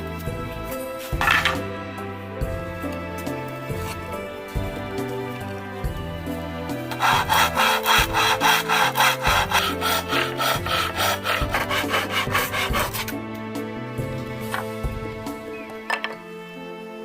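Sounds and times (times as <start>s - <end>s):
hand saw cutting wood: 1.0s - 1.7s, 6.7s - 13.2s.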